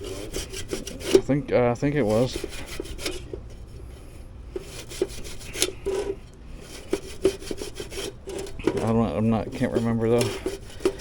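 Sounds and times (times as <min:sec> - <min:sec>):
brush scrubbing metal: 0:00.0 - 0:11.0.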